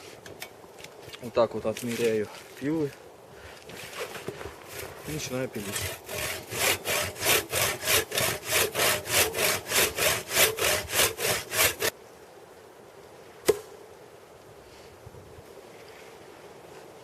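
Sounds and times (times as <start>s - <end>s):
hand saw cutting tree trunk: 3.6s - 11.9s.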